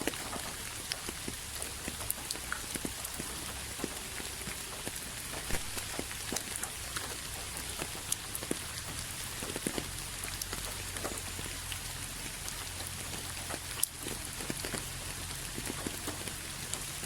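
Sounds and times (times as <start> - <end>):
rain pattering on hard surface: 0.0 - 17.0.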